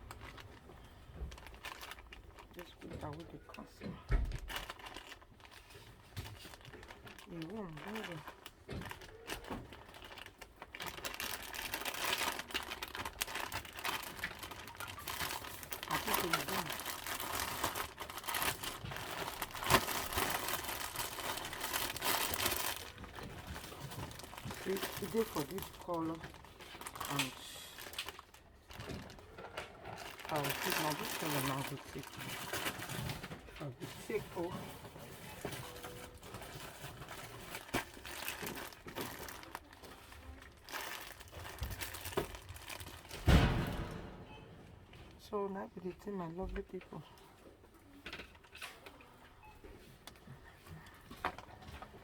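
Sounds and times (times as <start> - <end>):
crinkling and rustling of goods: 0.0 - 52.0
loud dull thump: 43.3 - 44.3.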